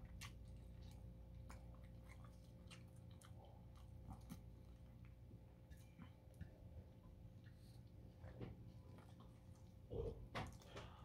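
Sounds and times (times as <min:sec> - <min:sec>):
chewing clicks and crunches: 0:00.0 - 0:05.2
steady low hum: 0:00.0 - 0:11.0.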